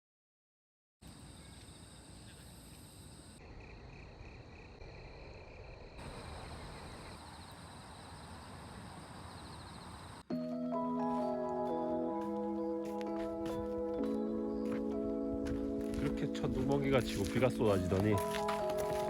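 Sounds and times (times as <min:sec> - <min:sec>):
insects chirping: 0:01.0 - 0:10.3, 0:11.3 - 0:19.0
low outdoor noise: 0:01.0 - 0:10.3.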